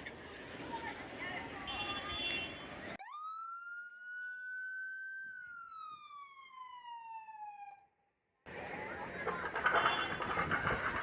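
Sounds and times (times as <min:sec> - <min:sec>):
outdoor crowd noise: 0:00.0 - 0:03.0, 0:08.5 - 0:11.0
emergency vehicle siren wailing: 0:03.0 - 0:10.7.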